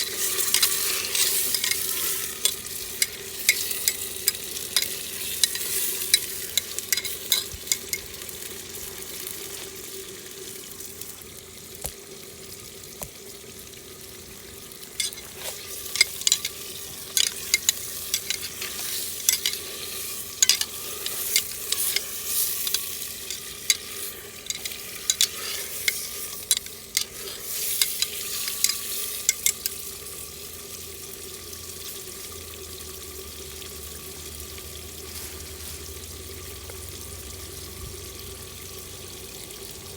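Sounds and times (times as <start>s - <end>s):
stirring clicks and scrapes: 0.0s - 9.8s, 15.0s - 29.8s
food sizzling in a pot: 0.0s - 39.9s.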